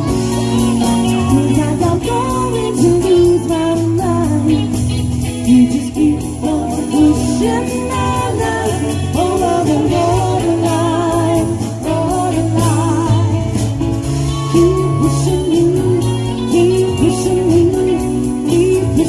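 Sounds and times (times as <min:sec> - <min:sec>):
live pop-rock band: 0:00.0 - 0:19.0
woman singing lead: 0:00.0 - 0:19.0.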